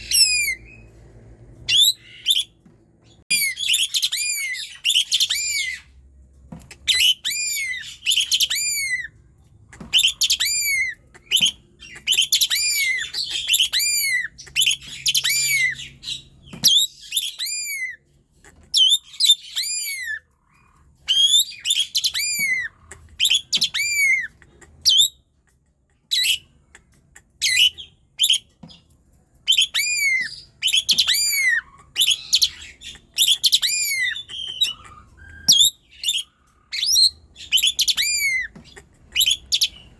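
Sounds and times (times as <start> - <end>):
starling singing: 0.0 - 0.9, 1.6 - 5.9, 6.8 - 18.0, 29.4 - 39.9.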